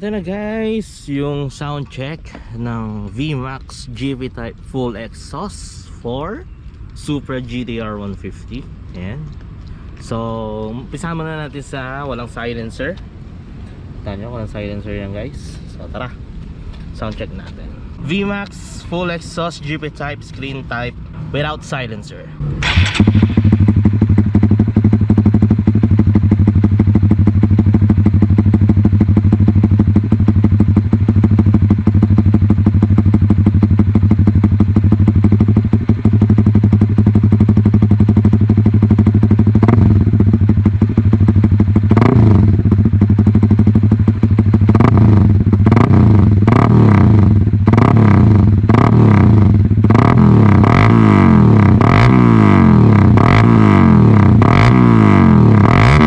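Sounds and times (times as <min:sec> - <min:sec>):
engine revving in throttle blips: 0:19.7 - 0:56.0
motorcycle engine idling: 0:22.6 - 0:50.8.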